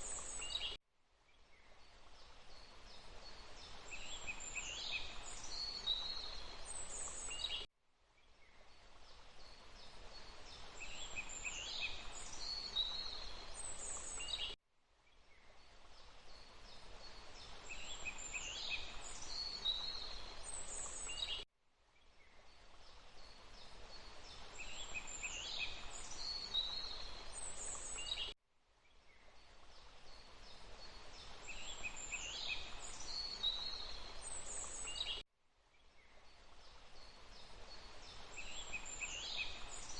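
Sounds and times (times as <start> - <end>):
bird chirps: 0.0 - 0.8, 31.5 - 35.2.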